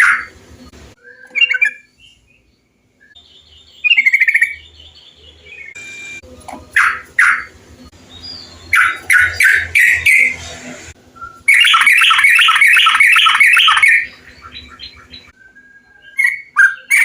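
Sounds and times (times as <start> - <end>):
bird chirping and chattering: 3.1 - 5.8, 6.6 - 10.6, 11.3 - 15.4, 16.0 - 17.0.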